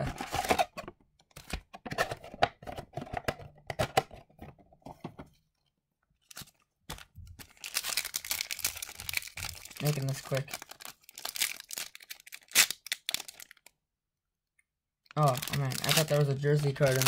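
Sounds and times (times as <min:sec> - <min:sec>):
foil wrapper crinkling and tearing: 0:06.3 - 0:13.7, 0:15.1 - 0:17.0.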